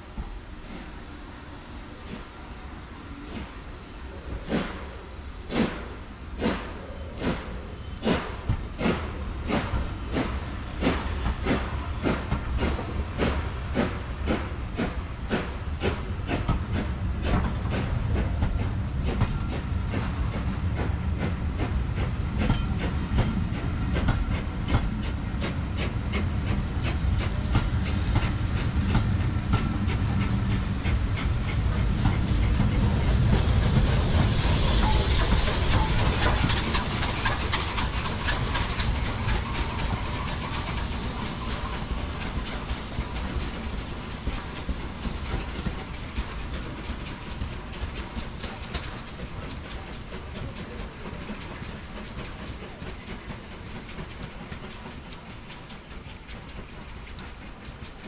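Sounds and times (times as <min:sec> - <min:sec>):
low train rumble: 0:00.0 - 0:58.0
steam hiss: 0:00.0 - 0:58.0
wheels clicking over rail joints: 0:25.8 - 0:58.0.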